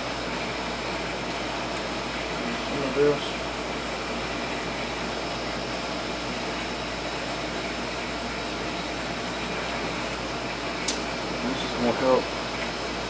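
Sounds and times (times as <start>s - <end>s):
steady hum and hiss: 0.0s - 13.0s.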